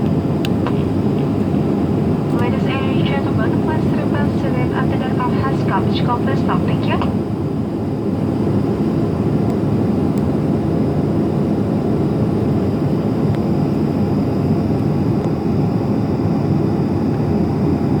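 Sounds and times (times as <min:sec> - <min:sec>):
aircraft cabin rumble: 0:00.0 - 0:18.0
faint high whine: 0:01.7 - 0:07.3.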